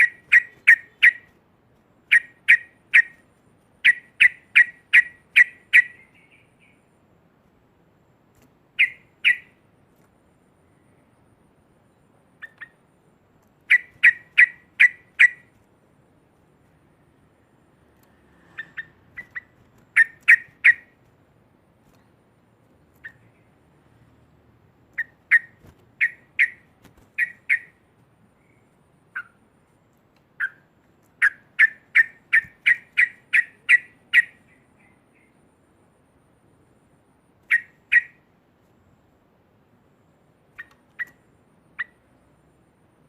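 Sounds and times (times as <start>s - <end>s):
bulbul chattering calls: 0.0s - 1.3s, 2.1s - 3.2s, 3.8s - 6.8s, 8.8s - 9.6s, 13.6s - 15.5s, 18.5s - 21.0s, 25.0s - 27.8s, 30.4s - 35.4s, 37.5s - 38.2s.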